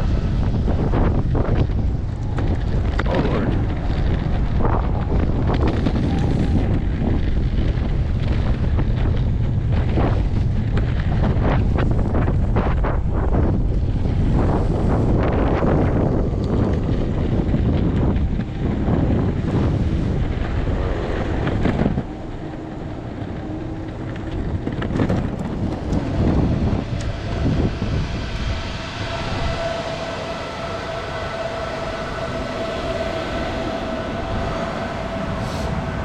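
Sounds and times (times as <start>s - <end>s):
wheels rumbling over pavement: 0.0s - 36.0s
wind buffeting microphone: 0.0s - 36.0s.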